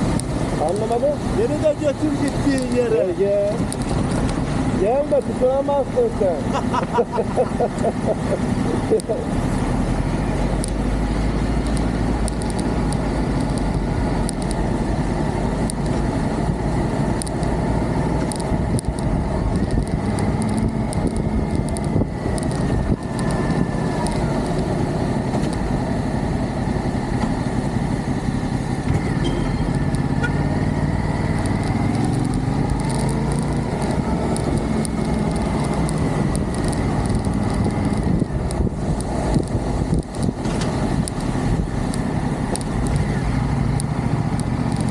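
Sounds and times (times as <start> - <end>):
wind rush: 9.9 - 26.8, 27.5 - 44.1
motorcycle engine running: 11.2 - 44.9.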